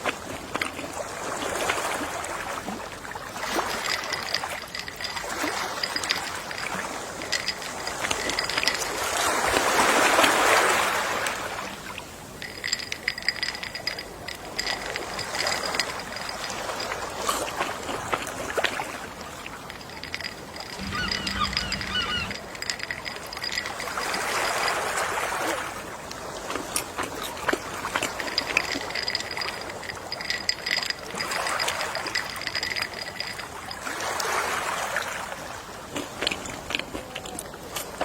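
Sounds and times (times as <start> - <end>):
sea waves washing ashore: 0.0 - 38.0.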